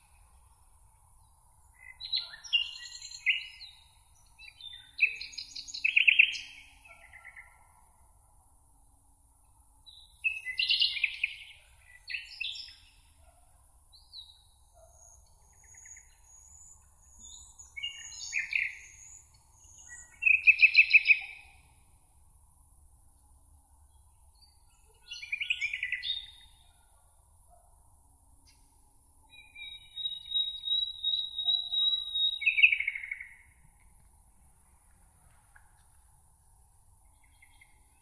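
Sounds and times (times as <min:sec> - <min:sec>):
songbirds singing trilled phrases: 0:15.0 - 0:21.6, 0:24.4 - 0:26.6, 0:29.3 - 0:33.6.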